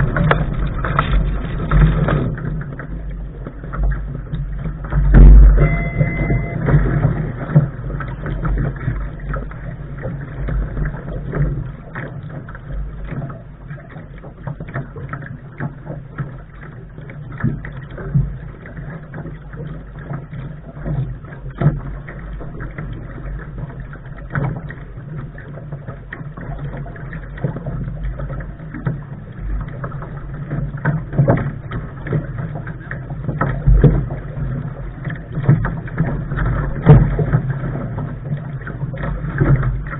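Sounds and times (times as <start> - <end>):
low rumble of boat under way: 0.0 - 39.9
water knocking against hull: 0.0 - 39.9.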